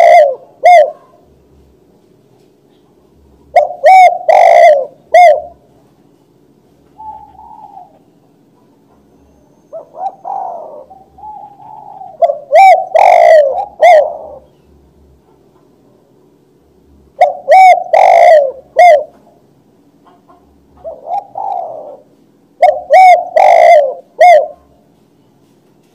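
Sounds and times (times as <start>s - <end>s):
dove cooing: 0.0s - 1.3s, 3.4s - 5.7s, 6.9s - 8.2s, 9.1s - 15.7s, 17.1s - 19.4s, 20.0s - 24.8s.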